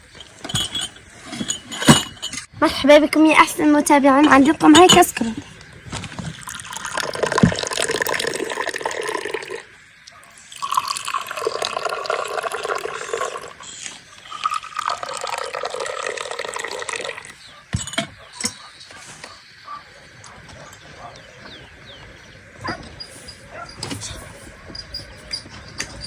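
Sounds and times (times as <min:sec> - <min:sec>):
water pouring: 0:05.9 - 0:09.8, 0:10.4 - 0:17.4.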